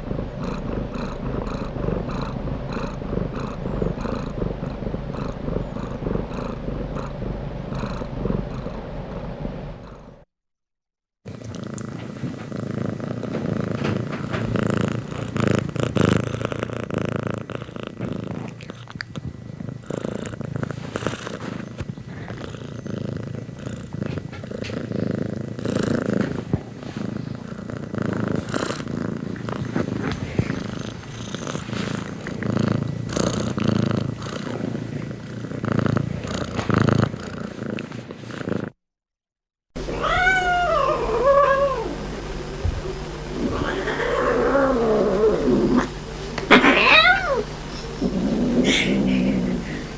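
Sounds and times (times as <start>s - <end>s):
cat purring: 0.0s - 10.3s, 11.3s - 38.8s, 39.8s - 49.9s
cat meowing: 39.9s - 42.0s, 43.4s - 45.9s, 46.5s - 47.5s.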